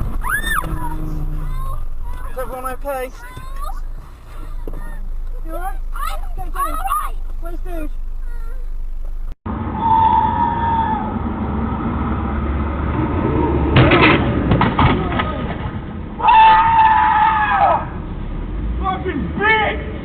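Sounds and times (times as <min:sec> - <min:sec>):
car horn blaring: 0:00.0 - 0:05.2
traffic noise: 0:00.0 - 0:20.0
sharp knocks and clattering: 0:13.8 - 0:16.0.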